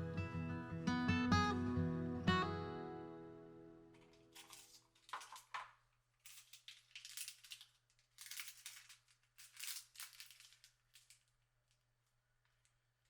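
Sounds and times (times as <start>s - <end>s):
packaging crinkling and rustling: 4.0s - 11.9s.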